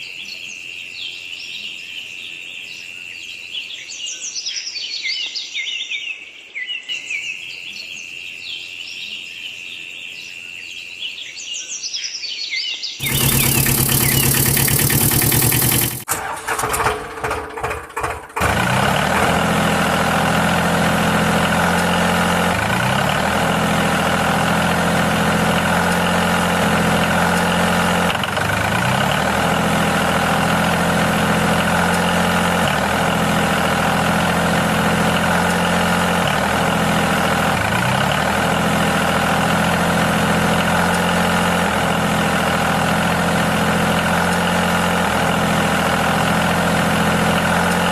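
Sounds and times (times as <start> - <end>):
tractor engine running: 13.0 - 47.9
tractor engine starting: 13.0 - 47.9.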